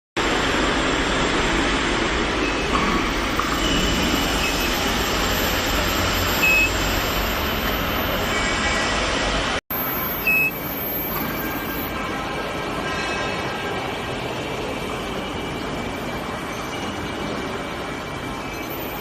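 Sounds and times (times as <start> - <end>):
machinery low hum: 0.2 - 12.8
thin high tone: 2.4 - 9.0, 9.7 - 12.1
brief short tones: 3.5 - 8.4, 9.7 - 11.9.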